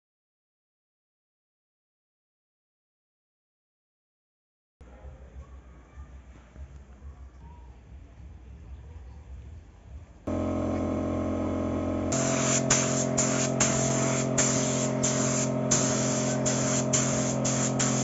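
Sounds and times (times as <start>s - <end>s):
paint sprayer motor humming: 10.3s - 18.0s
paint spray hissing: 12.1s - 18.0s.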